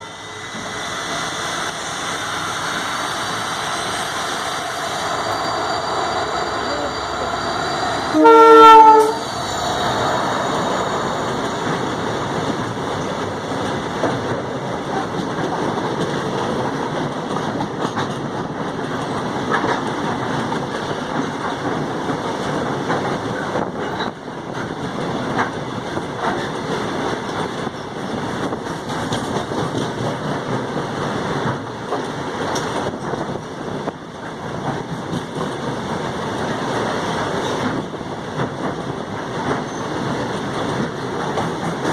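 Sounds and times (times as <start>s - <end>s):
train wagons rumbling over rails: 0.0s - 41.9s
train horn blast: 8.1s - 9.3s.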